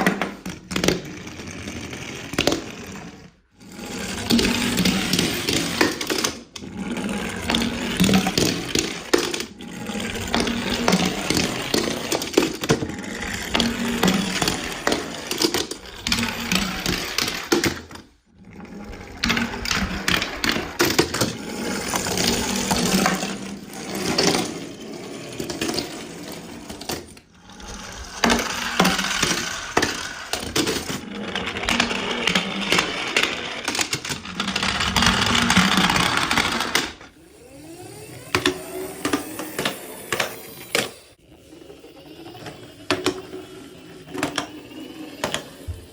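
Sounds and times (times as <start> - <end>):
toy cars clattering down a slide: 0.0 - 37.2, 38.2 - 41.1, 42.2 - 45.9.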